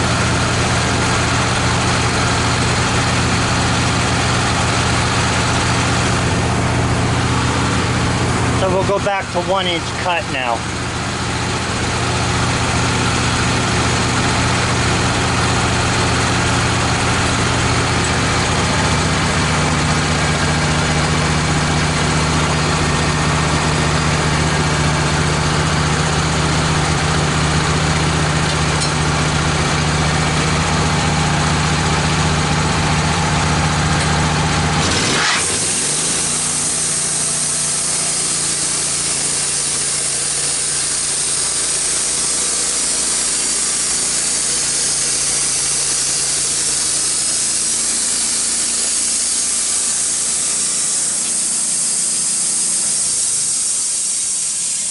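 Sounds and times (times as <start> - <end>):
sawmill engine running: 0.0 - 54.9
band saw blade sawing wood: 34.8 - 53.2.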